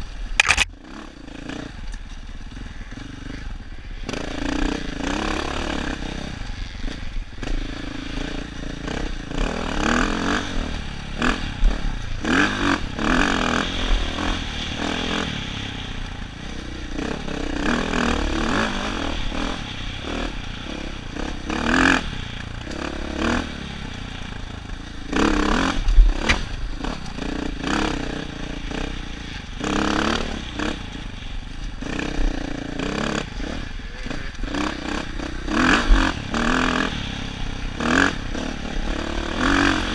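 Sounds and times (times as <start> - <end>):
bike knocking and scraping on rocks: 0.4 - 0.7
dirt bike engine revving: 0.4 - 39.9.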